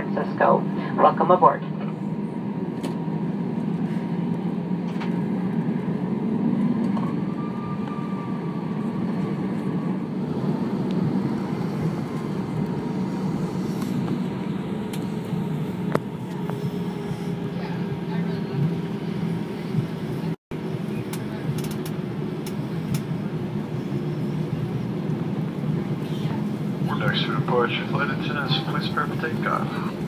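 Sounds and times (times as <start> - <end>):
airliner cabin rumble and hiss: 0.0 - 30.0.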